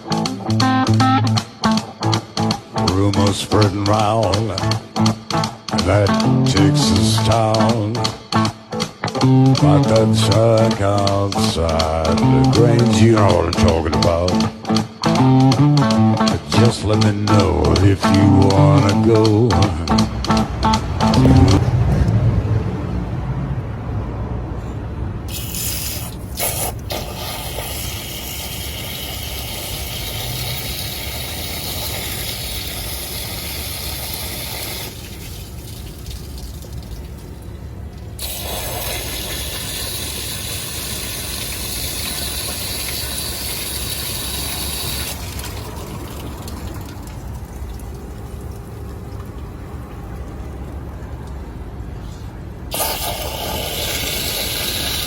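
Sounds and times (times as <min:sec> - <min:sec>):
hose water hissing and splashing: 0:25.3 - 0:48.4, 0:52.7 - 0:55.0.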